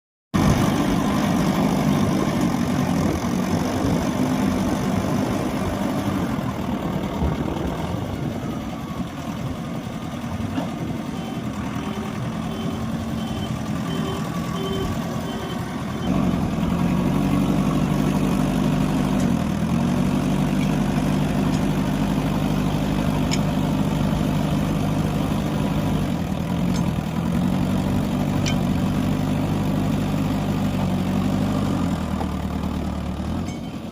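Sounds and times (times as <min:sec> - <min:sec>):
heavy diesel engines: 0:00.4 - 0:33.9
reversing alarm beeping: 0:11.0 - 0:16.3.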